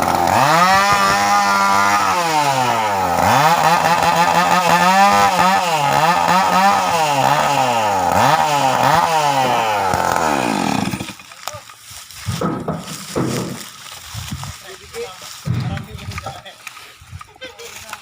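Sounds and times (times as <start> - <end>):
chainsaw engine revving: 0.0 - 11.4.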